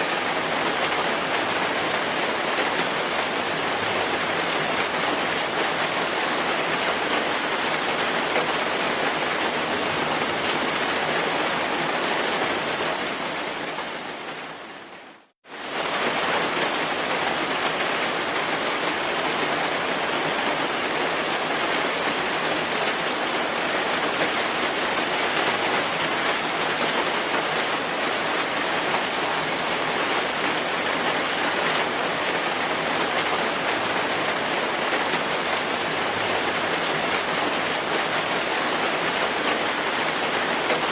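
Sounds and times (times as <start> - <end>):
dense rainfall: 0.0 - 40.9.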